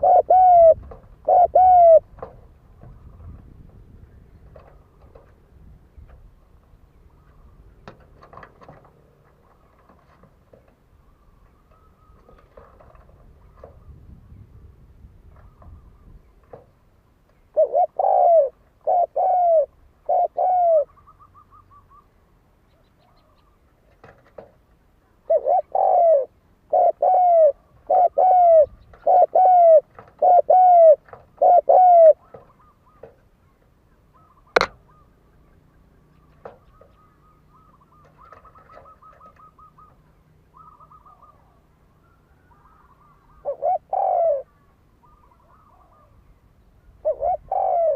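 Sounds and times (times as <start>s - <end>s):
dove cooing: 0.0s - 5.4s, 17.5s - 22.2s, 25.2s - 47.9s.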